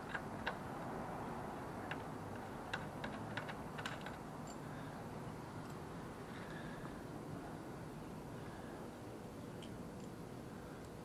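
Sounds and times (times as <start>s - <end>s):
steady low hiss: 0.0s - 11.0s
light clicks of tools and parts: 1.8s - 4.9s, 5.6s - 6.6s, 9.6s - 10.2s, 10.8s - 11.0s.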